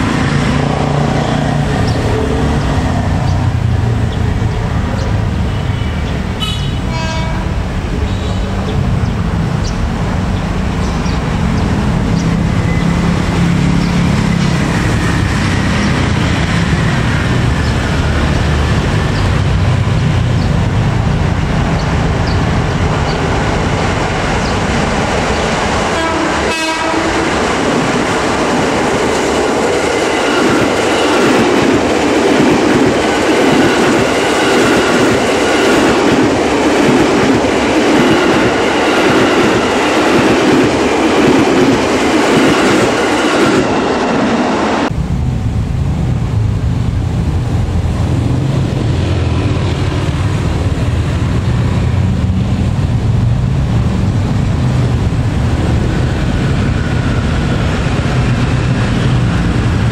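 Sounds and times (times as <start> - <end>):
train wheels on rail: 0.0 - 59.9
steady low rumble: 44.8 - 59.9.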